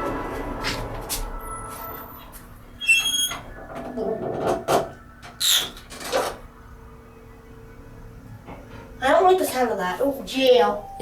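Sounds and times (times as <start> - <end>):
elevator doors rushing: 0.0 - 7.0
elevator electronic chime: 10.5 - 11.0.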